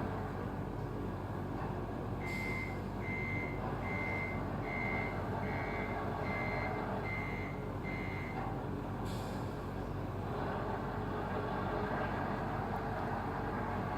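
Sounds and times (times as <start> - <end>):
low engine rumble: 0.0 - 13.9
reversing alarm beeping: 2.2 - 8.4.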